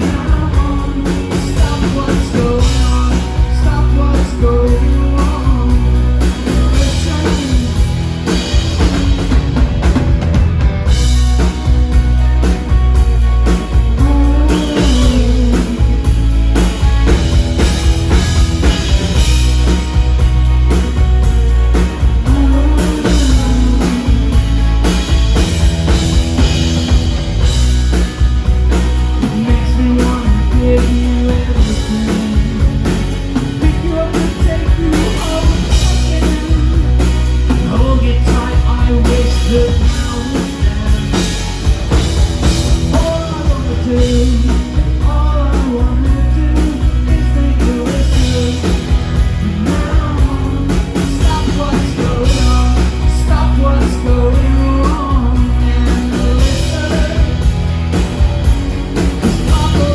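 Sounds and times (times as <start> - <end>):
man singing lead vocal: 0.0 - 8.6, 13.8 - 17.2, 21.8 - 25.1, 29.1 - 41.6, 42.4 - 57.6, 59.2 - 59.9
live rock band playing: 0.0 - 59.9.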